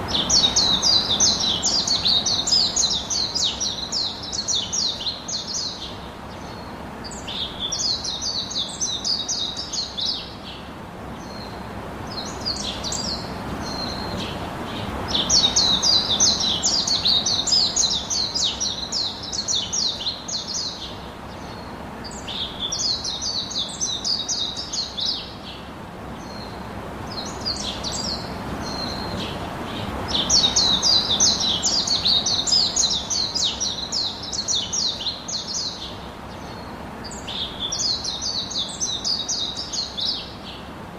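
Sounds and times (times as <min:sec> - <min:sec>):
low background hiss: 0:00.0 - 0:40.9
songbird singing: 0:00.0 - 0:40.9.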